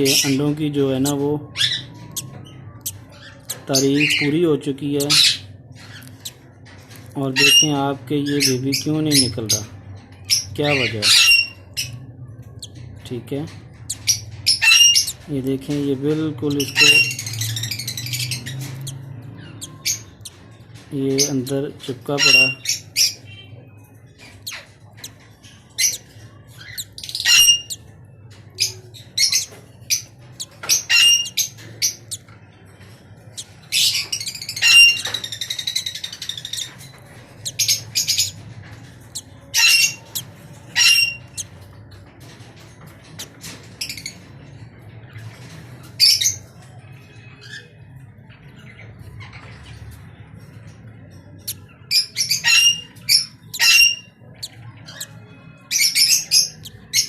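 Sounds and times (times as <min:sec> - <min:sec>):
birds squawking: 0:00.0 - 0:06.5, 0:13.7 - 0:15.3, 0:16.4 - 0:41.7, 0:51.3 - 0:57.0.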